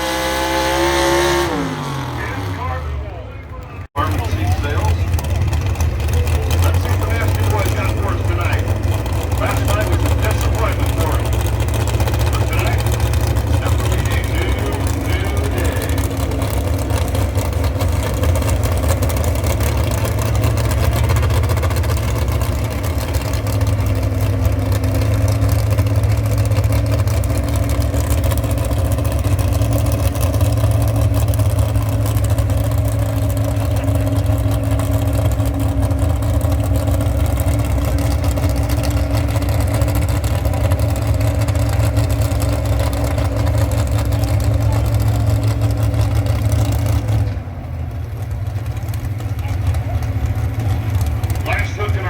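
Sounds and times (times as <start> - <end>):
tractor engine running: 0.0 - 52.0.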